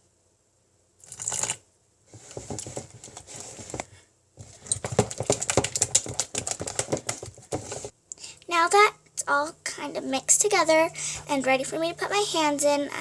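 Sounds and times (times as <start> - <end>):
slime stirred clicking and scraping: 4.4 - 7.9.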